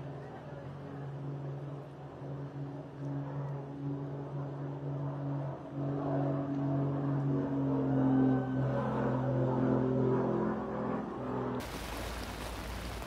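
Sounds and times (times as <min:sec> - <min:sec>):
engine running: 0:08.9 - 0:13.0.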